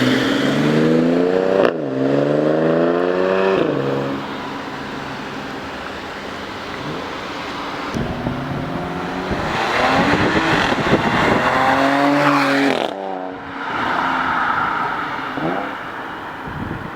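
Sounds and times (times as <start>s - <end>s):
car exhaust accelerating hard: 6.7s - 13.0s.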